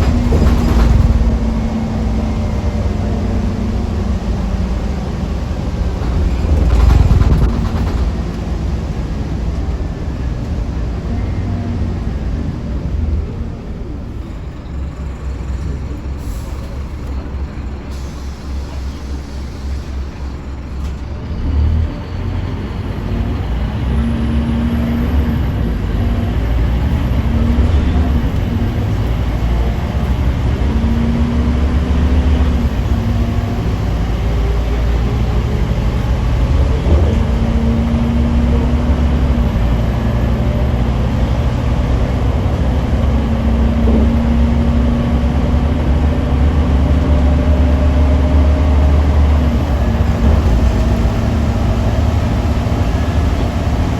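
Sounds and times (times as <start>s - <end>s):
bus engine drone: 0.0s - 53.9s
road noise: 0.0s - 53.9s.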